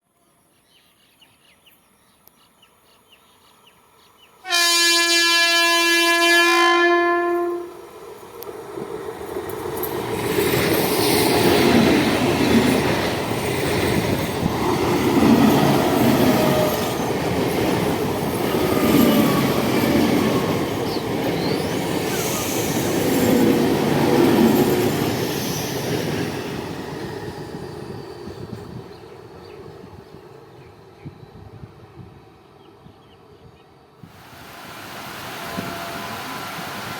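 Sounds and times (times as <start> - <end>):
train horn blast: 4.4 - 7.8, 35.2 - 36.6.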